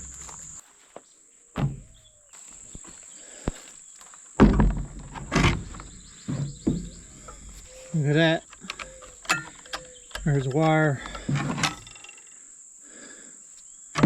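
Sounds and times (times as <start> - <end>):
crickets chirping: 0.0 - 14.0
handling thumps: 1.6 - 2.1, 4.4 - 12.2.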